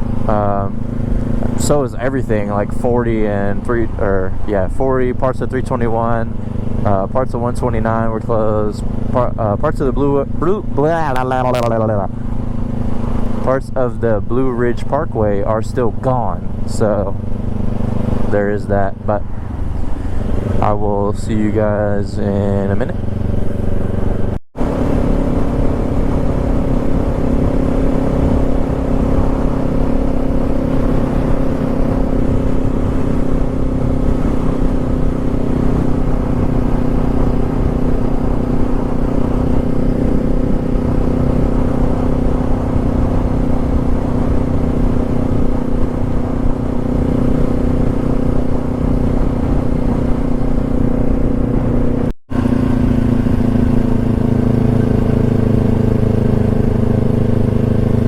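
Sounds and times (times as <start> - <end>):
motorcycle engine cruising: 0.0 - 58.0
road and wind rumble: 0.0 - 58.0.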